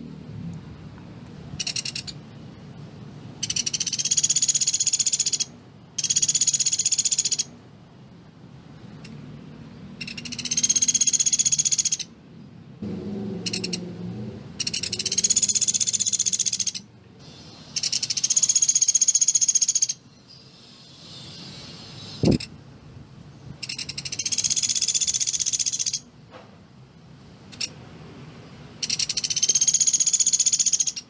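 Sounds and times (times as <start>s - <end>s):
woodpecker trilling calls: 1.6s - 2.2s, 3.4s - 7.5s, 10.0s - 12.1s, 13.5s - 13.8s, 14.6s - 22.5s, 23.6s - 26.1s, 28.8s - 31.0s.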